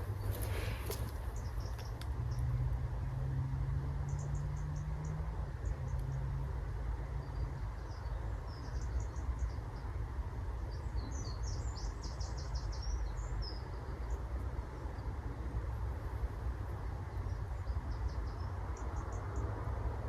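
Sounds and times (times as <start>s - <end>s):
songbird chirping: 0.0s - 2.7s, 7.1s - 15.1s.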